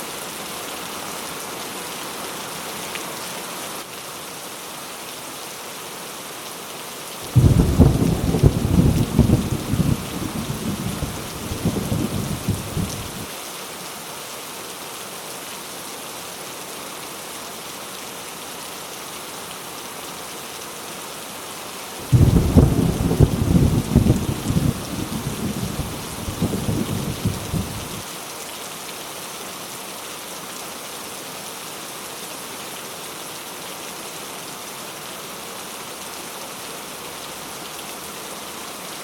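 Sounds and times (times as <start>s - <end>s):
heavy rain: 0.0s - 39.0s
thunder rumbling: 7.3s - 13.2s, 22.1s - 28.0s.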